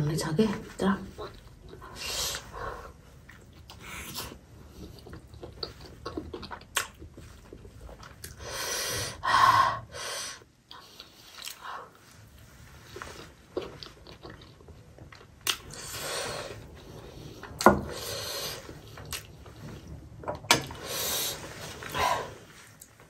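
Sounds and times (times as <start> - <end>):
wet chewing mouth sounds: 1.2 - 8.4, 12.8 - 19.8.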